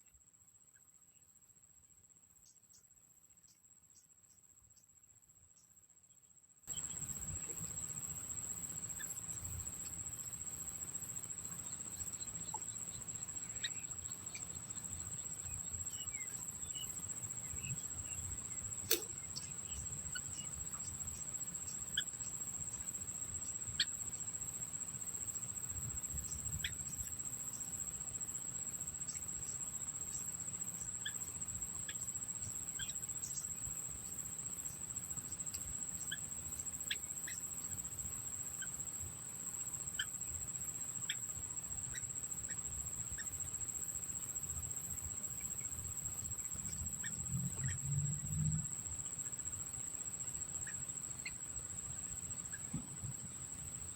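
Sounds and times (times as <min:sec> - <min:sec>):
crickets trilling: 0:02.4 - 0:53.9
small birds chirping: 0:06.7 - 0:27.8, 0:28.5 - 0:40.2.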